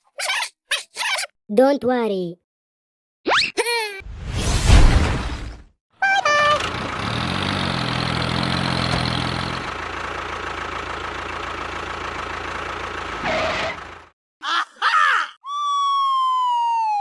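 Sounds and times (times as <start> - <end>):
engine idling: 6.1 - 14.1.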